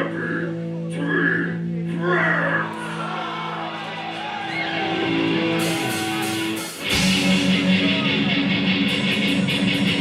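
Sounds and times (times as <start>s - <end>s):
metal band playing loud: 2.7s - 10.0s.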